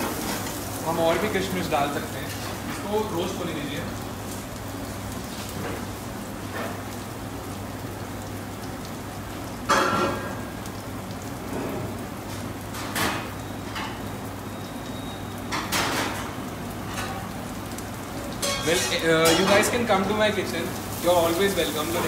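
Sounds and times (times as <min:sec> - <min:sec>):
onions sizzling in hot oil: 0:00.0 - 0:22.0.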